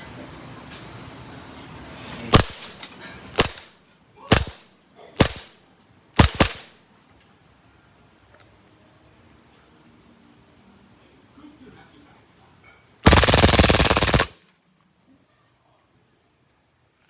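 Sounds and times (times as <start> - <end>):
airsoft pistol shots: 2.4 - 2.8, 3.4 - 3.7, 4.3 - 4.6, 5.2 - 5.5, 6.2 - 6.7, 13.1 - 14.4.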